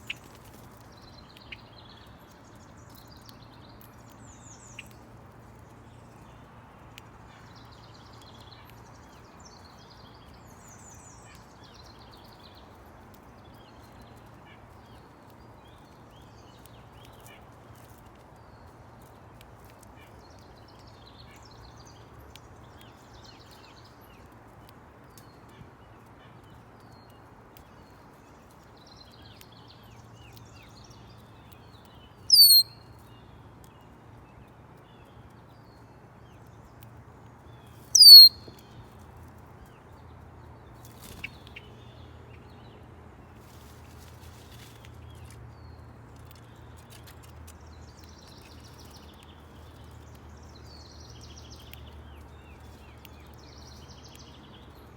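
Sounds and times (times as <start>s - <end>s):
songbird sharp descending calls: 32.3s - 32.6s, 38.0s - 38.4s
faint bird chirps: 32.3s - 32.8s, 37.9s - 38.7s.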